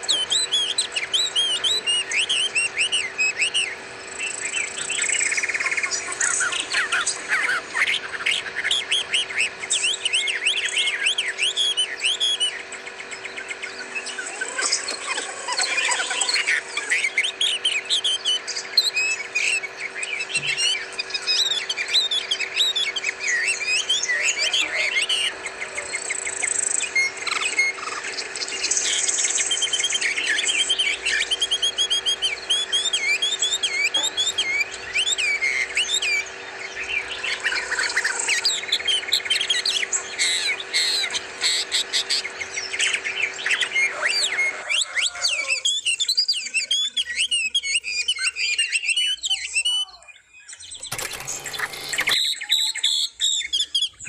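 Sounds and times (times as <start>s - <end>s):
steady low hum: 0.0s - 44.5s
songbirds chirping: 16.4s - 54.0s.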